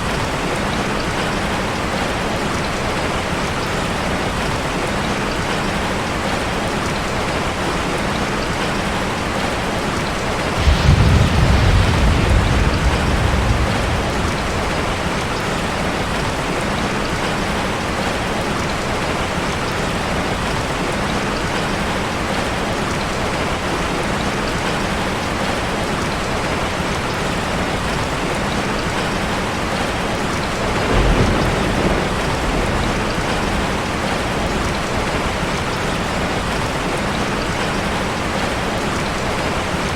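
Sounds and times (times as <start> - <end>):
rushing water hiss: 9.8 - 18.2
low rumbles: 10.6 - 16.8.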